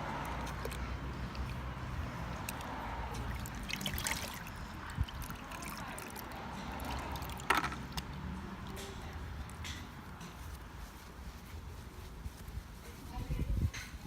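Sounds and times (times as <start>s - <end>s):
water sloshing and dribbling: 0.0s - 8.8s.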